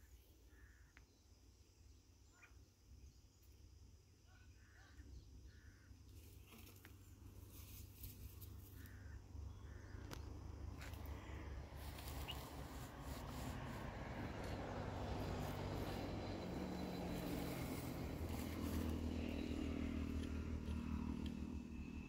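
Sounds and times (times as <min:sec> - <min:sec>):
faint bird calls: 0:00.0 - 0:01.2, 0:02.2 - 0:02.7, 0:08.6 - 0:13.5.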